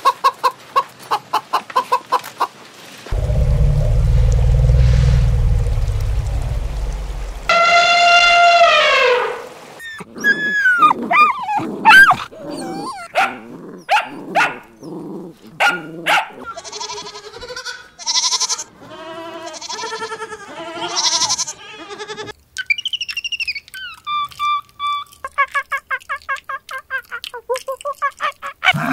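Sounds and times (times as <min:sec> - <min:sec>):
dog barking: 0:11.1 - 0:12.2, 0:13.1 - 0:14.7, 0:15.6 - 0:16.5
long wavering bleats: 0:16.6 - 0:22.3.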